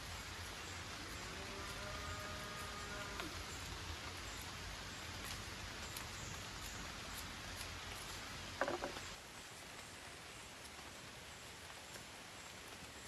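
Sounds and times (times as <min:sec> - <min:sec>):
rain falling: 0:00.0 - 0:13.0
clatter of knocks: 0:08.6 - 0:09.1.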